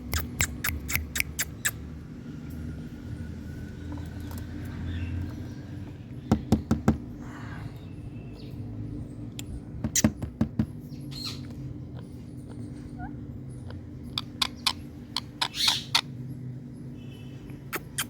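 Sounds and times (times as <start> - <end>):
parrot chirping softly: 0.0 - 1.8, 10.9 - 16.2
parrot sharp clicks: 0.1 - 1.8.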